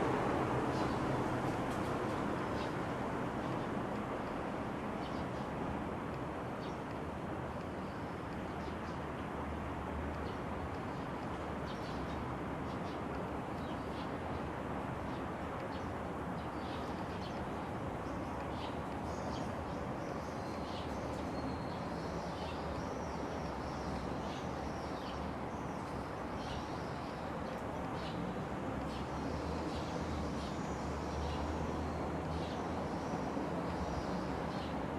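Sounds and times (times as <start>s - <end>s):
small birds chirping: 10.2s - 34.9s.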